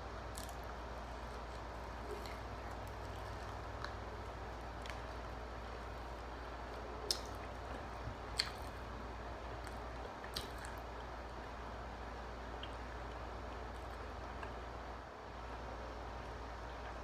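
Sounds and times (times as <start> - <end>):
steady low hum: 0.0 - 17.0
person chewing: 0.3 - 10.8
sharp wet clicks: 7.0 - 7.6, 8.3 - 8.8, 9.6 - 10.8.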